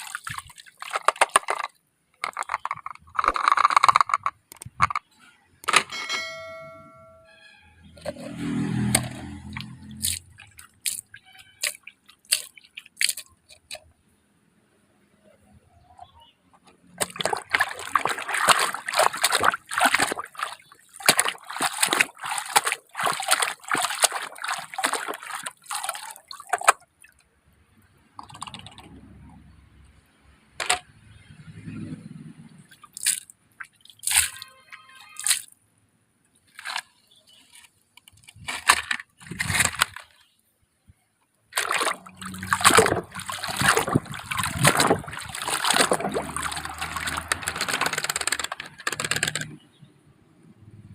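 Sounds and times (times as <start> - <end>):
water sloshing and splashing: 0.0 - 5.0, 7.9 - 14.0, 16.6 - 27.4, 28.1 - 29.3, 30.6 - 35.6, 36.4 - 40.4, 41.5 - 49.7.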